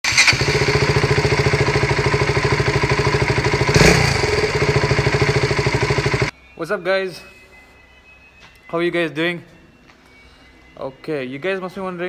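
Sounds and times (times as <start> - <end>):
engine rattling: 0.0 - 6.3
motorcycle engine idling: 0.1 - 6.3.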